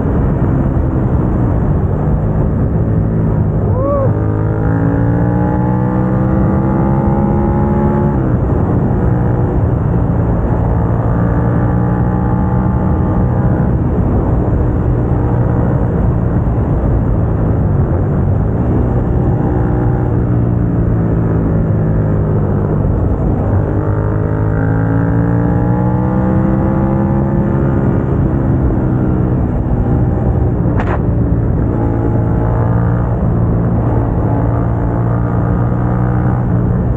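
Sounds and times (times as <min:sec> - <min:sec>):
motorcycle engine revving: 0:00.0 - 0:36.9
wind noise: 0:00.0 - 0:36.9.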